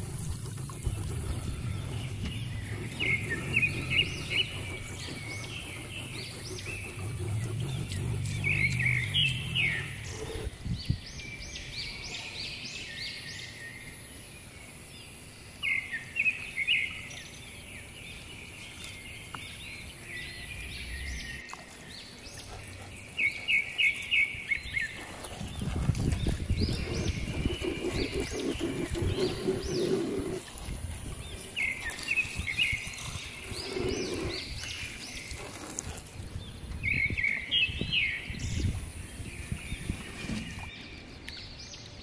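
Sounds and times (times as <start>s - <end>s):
faint low hum: 0.0s - 10.6s
birds chirping: 0.0s - 14.9s, 15.6s - 42.0s.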